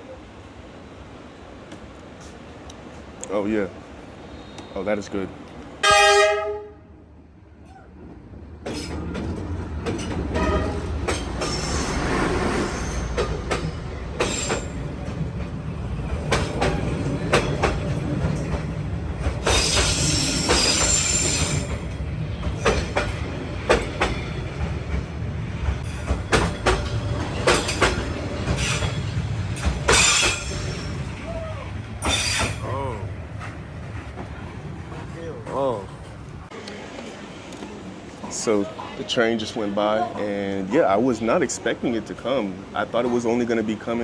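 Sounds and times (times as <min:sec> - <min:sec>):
train rumbling past: 0:00.2 - 0:38.4
wheels clicking over rail joints: 0:08.6 - 0:12.1, 0:12.8 - 0:36.5
train wheels screeching: 0:08.7 - 0:25.0, 0:25.6 - 0:36.5.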